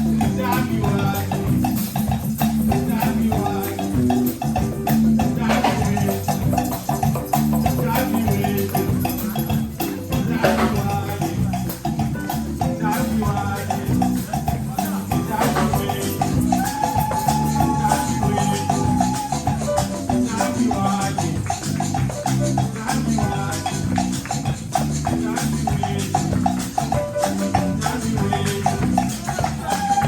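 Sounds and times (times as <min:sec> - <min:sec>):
pitched instruments: 0:00.0 - 0:30.0
shakers and hand percussion: 0:00.0 - 0:30.0.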